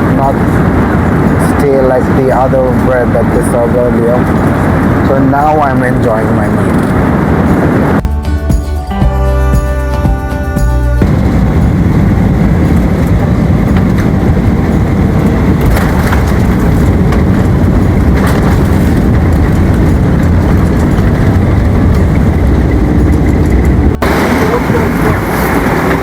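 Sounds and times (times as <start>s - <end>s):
vehicle rumbling in motion: 0.0s - 26.0s
music: 8.0s - 11.9s.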